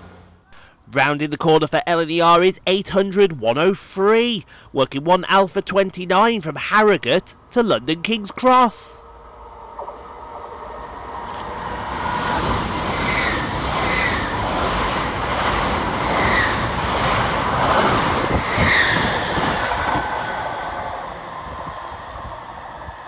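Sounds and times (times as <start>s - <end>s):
train passing: 0.0s - 0.5s, 6.8s - 23.0s.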